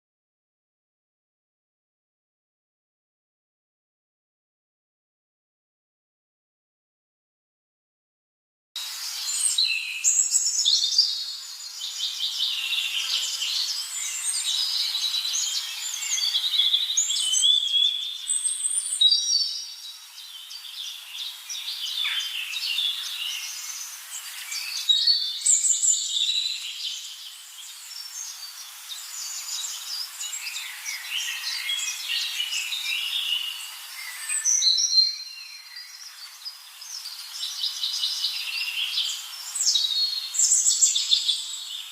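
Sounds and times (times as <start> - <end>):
birds chirping and trilling: 8.8 - 41.9.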